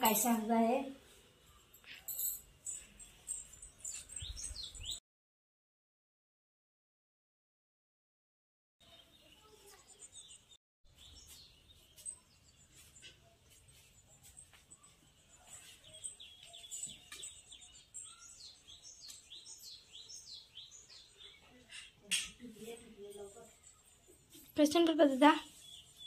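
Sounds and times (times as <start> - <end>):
bird chirping: 2.6 - 5.0, 8.8 - 26.0.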